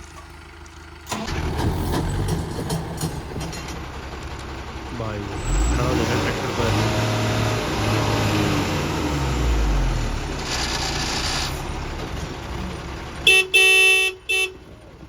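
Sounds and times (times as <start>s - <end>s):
tractor engine under load: 0.0s - 15.0s
vehicle horn blasts: 13.2s - 14.7s.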